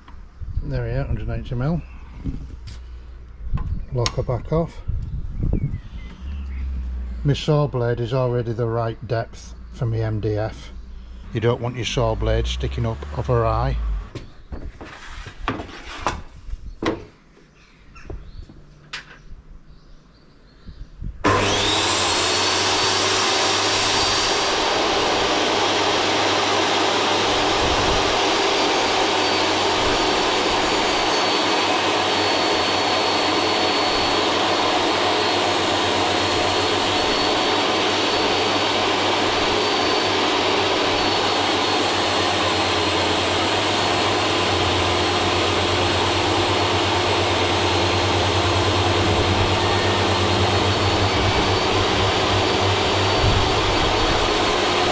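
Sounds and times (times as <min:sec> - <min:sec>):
table saw cutting board: 0:11.3 - 0:14.2, 0:21.2 - 0:54.9.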